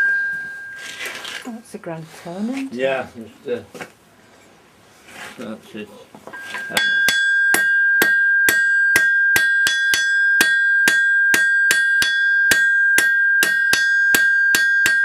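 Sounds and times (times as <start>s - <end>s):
anvil ringing: 0.0s - 0.9s, 6.4s - 15.0s
hammer striking iron on anvil: 6.5s - 15.0s.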